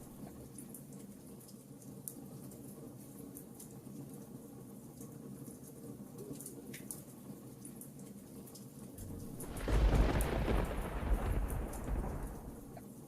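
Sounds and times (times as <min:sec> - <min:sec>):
deep thunder roll: 0:09.0 - 0:12.8
wood fire crackling: 0:09.0 - 0:12.8.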